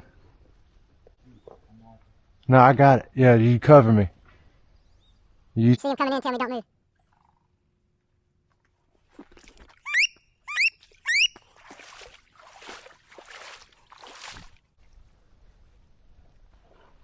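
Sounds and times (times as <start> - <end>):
ducks squealing whistles: 9.9 - 11.4.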